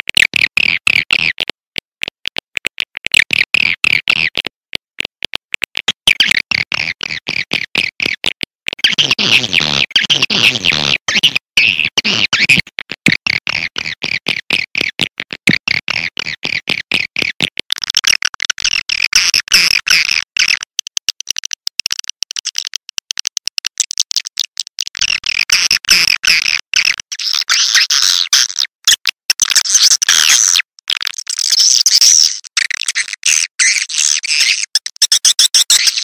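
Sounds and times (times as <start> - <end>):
sharp clicks: 16.6 - 27.1.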